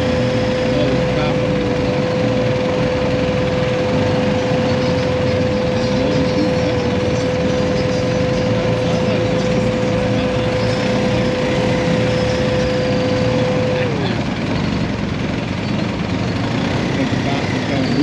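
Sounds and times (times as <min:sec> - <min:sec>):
high whine: 0:00.0 - 0:18.0
motorcycle engine running: 0:00.0 - 0:18.0
road noise: 0:00.0 - 0:18.0.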